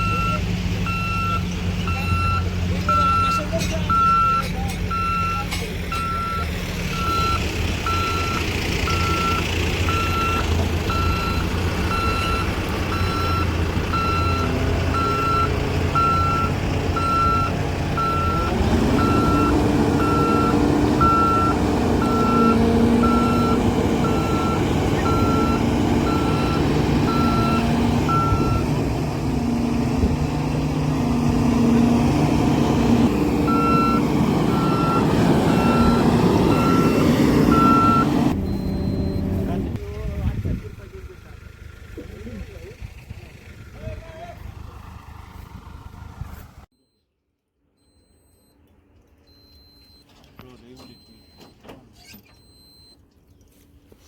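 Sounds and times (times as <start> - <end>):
reversing alarm beeping: 0.0 - 28.8, 33.4 - 39.4, 47.8 - 48.6, 49.3 - 50.1, 50.7 - 53.0
heavy diesel machinery running: 0.0 - 46.7.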